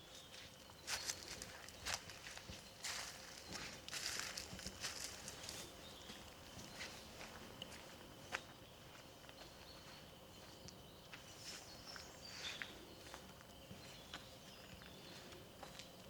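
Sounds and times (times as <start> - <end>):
footsteps crunching on trail: 0.0 - 16.0.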